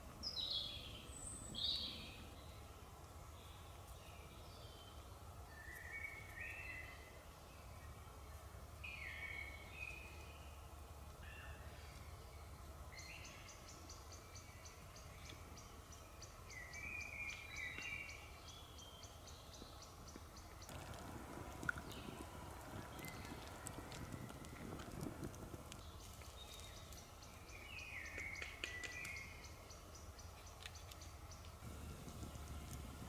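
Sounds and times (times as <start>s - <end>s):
faint birdsong warbling: 0.0s - 33.0s
rapid high ticks: 20.1s - 27.1s, 28.1s - 29.3s, 30.5s - 33.0s
low rumble: 31.6s - 33.0s.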